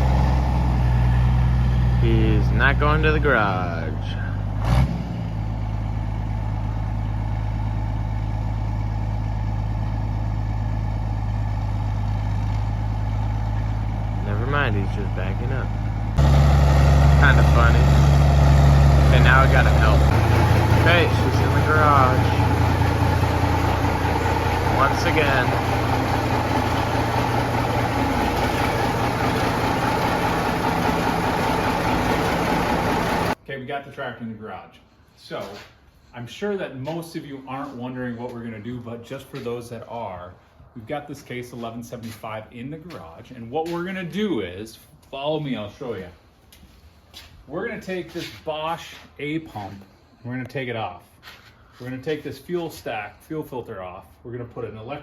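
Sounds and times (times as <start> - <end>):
tractor diesel engine running: 0.0 - 33.4.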